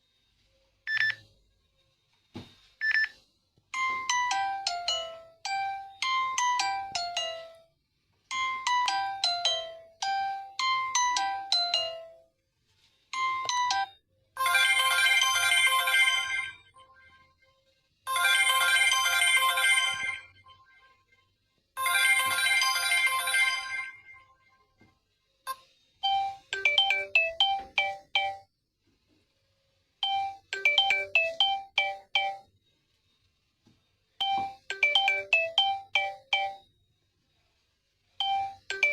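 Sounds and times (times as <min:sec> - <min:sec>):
phone alarm tones: 0:30.0 - 0:32.5, 0:34.2 - 0:36.7, 0:38.2 - 0:38.9.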